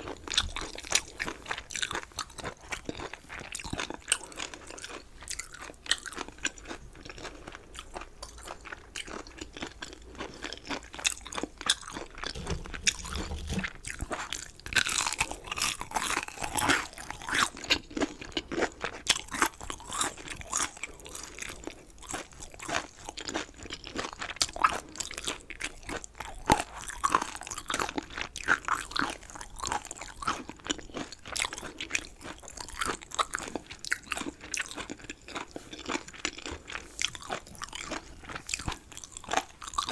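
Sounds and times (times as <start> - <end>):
crisp crunching while chewing: 11.7 - 14.0.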